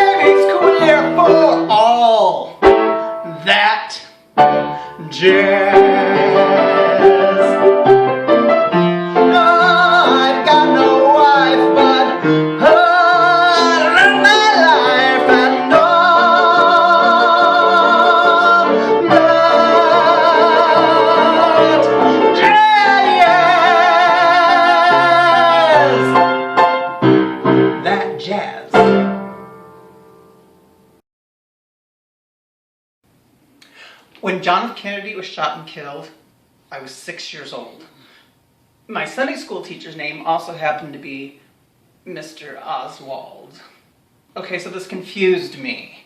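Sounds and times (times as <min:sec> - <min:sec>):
man singing with vibrato: 0:00.0 - 0:02.6, 0:03.2 - 0:26.4
piano accompaniment: 0:00.0 - 0:31.0.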